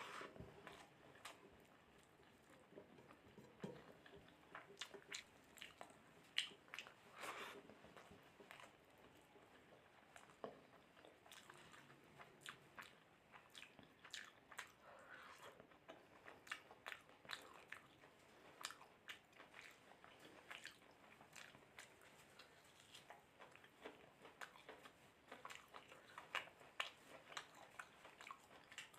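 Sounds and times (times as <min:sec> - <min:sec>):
close-up chewing: 0:00.0 - 0:28.9.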